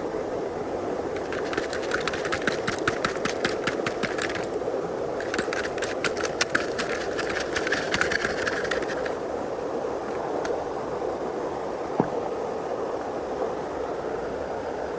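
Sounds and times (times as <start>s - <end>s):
steady rushing hiss: 0.0s - 14.9s
gear motors rattling clicking: 1.2s - 4.6s, 5.2s - 9.2s.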